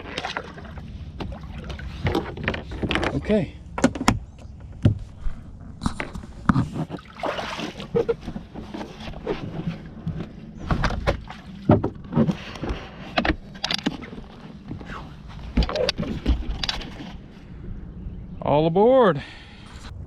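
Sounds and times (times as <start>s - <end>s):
water sloshing: 0.0s - 3.4s, 6.1s - 17.6s
knocks and thumps on jet ski: 0.0s - 17.2s
low steady hum: 0.0s - 20.0s.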